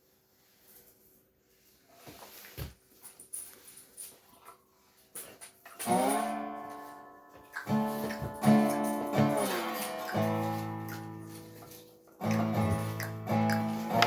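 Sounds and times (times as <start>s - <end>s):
acoustic guitar strumming: 5.9s - 14.0s.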